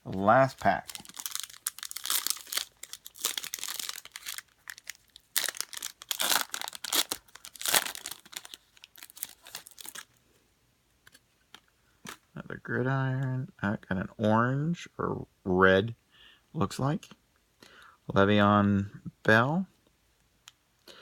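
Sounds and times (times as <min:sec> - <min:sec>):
foil pack tearing and crinkling: 0:00.7 - 0:10.1.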